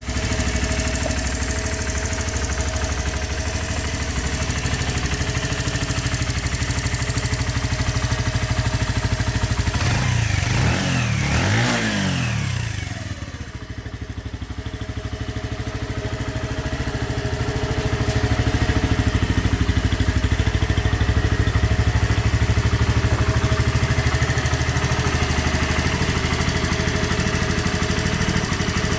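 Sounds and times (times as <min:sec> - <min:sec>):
motorcycle engine idling and revving: 0:00.0 - 0:28.9.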